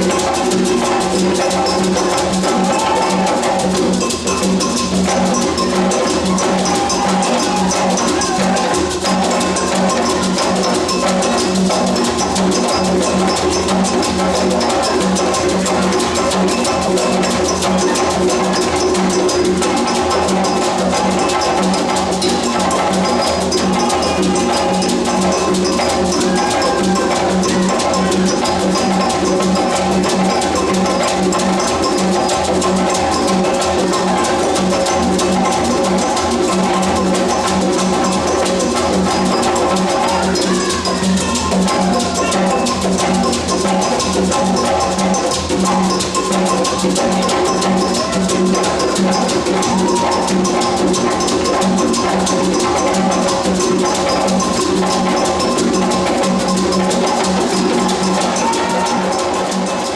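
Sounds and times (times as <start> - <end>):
drum ensemble playing: 0.0 - 59.9.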